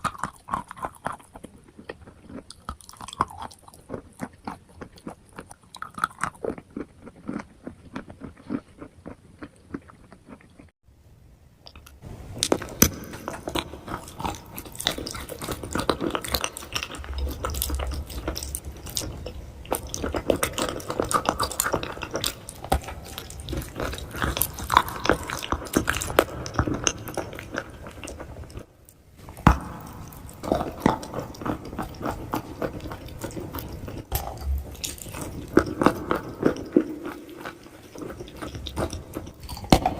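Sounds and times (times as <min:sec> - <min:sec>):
crunching and chewing chalk: 0:00.0 - 0:10.8, 0:11.7 - 0:39.9.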